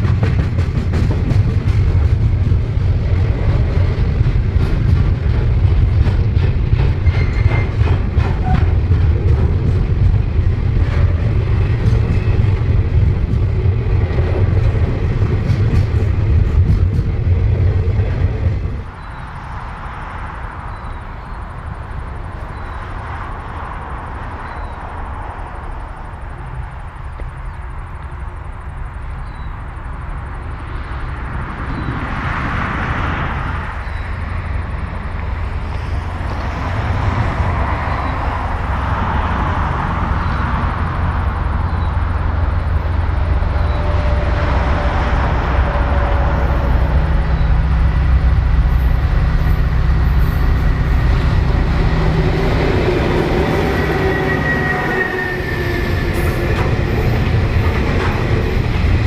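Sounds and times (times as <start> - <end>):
container wagons rolling by: 0.0 - 19.2
diesel locomotive rumble: 0.0 - 59.0.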